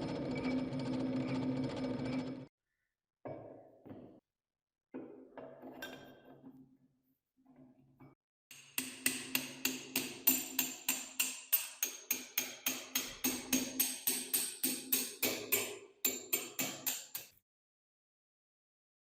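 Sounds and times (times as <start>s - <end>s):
hammer striking metal: 8.5s - 17.4s.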